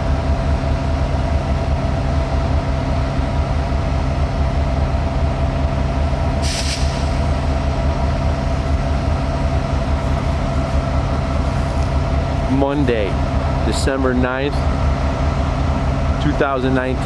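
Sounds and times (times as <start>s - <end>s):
diesel locomotive idling: 0.0s - 17.0s
air hiss: 6.4s - 7.4s.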